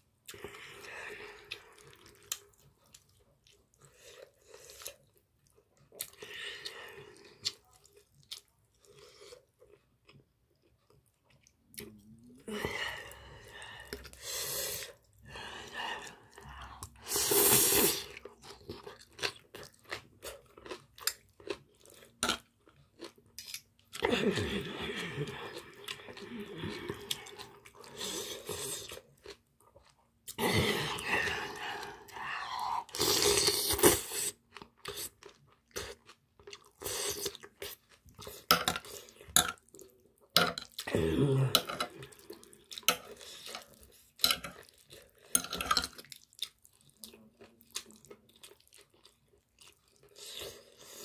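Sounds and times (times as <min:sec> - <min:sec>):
close chewing of food: 0:00.1 - 0:51.0
wet crunching chewing: 0:18.0 - 0:24.0.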